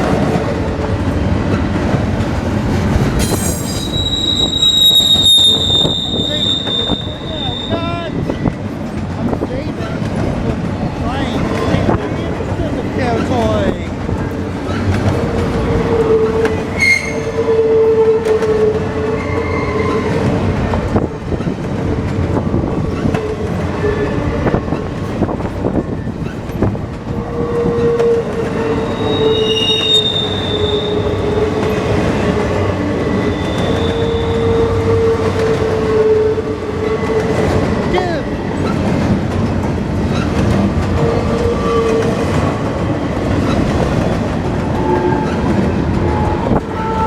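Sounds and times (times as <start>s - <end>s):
freight train rolling past: 0.0s - 47.0s
steel wheel squeal: 3.2s - 8.0s, 16.7s - 17.4s, 28.5s - 31.8s, 33.1s - 34.7s.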